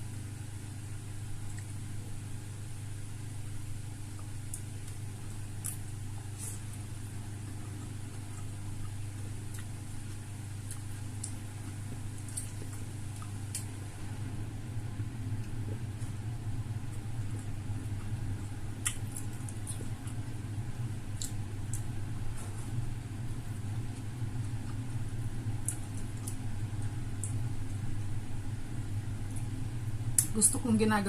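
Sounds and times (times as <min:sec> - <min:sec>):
steady low hum: 0:00.0 - 0:31.0
chewing clicks and smacks: 0:01.4 - 0:01.7, 0:04.1 - 0:06.9, 0:07.6 - 0:13.8, 0:16.8 - 0:20.4, 0:21.2 - 0:21.9, 0:25.5 - 0:27.8.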